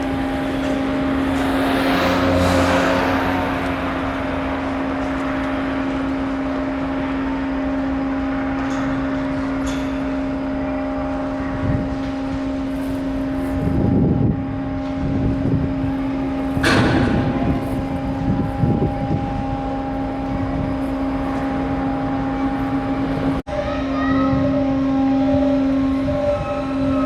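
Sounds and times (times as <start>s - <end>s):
rough rushing noise: 0.0s - 7.0s
ship engine drone: 0.0s - 23.4s.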